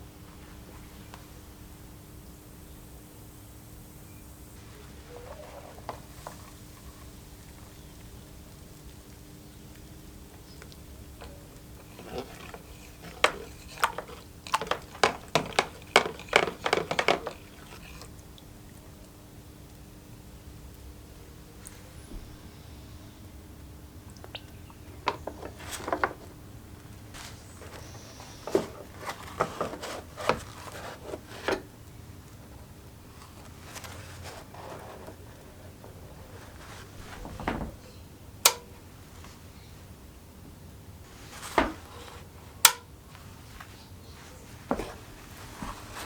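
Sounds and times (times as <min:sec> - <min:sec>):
low steady hum: 0:00.0 - 0:46.0
tools knocking and clicking: 0:38.5 - 0:38.7.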